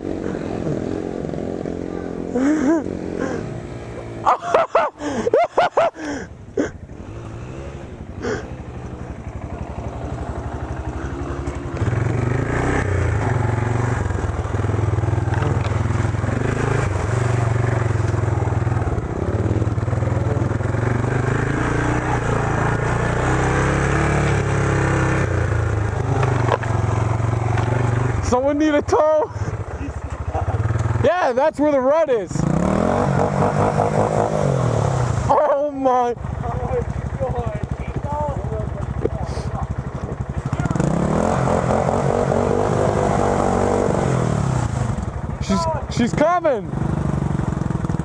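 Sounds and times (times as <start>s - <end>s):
off-road vehicle engine revving: 0.0s - 48.0s.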